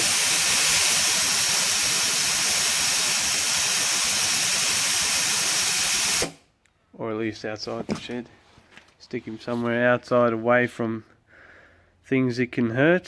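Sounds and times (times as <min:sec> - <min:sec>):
compressed air hissing: 0:00.0 - 0:06.4.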